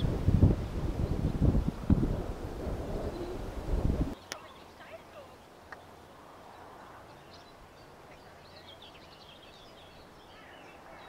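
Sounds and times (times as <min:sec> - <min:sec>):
small birds chirping: 0:04.1 - 0:11.0.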